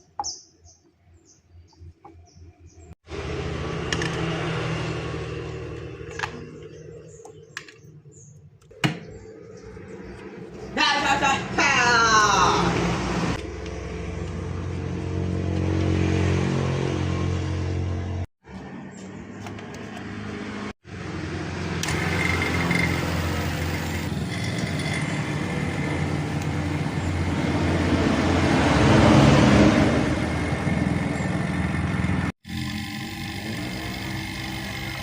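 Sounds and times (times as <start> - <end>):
small electric motor humming: 20.9 - 27.5, 30.5 - 35.0.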